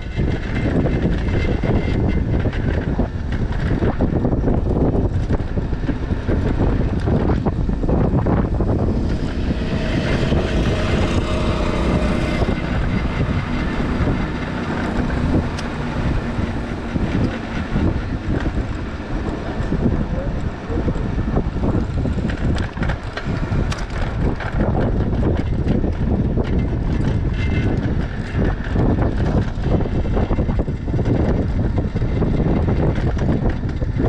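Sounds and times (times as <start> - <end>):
passing vehicle: 0.0 - 34.0
wind buffeting microphone: 0.0 - 34.0.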